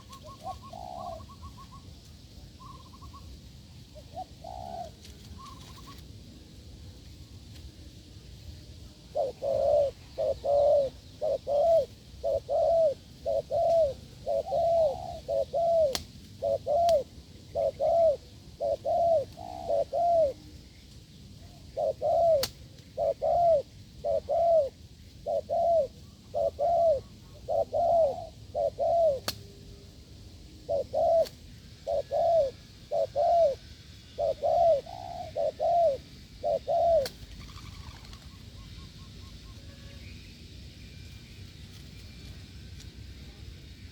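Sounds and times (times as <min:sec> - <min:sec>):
dove cooing: 0:00.0 - 0:01.8, 0:03.9 - 0:06.0, 0:09.1 - 0:20.5, 0:21.4 - 0:29.3, 0:30.6 - 0:39.7.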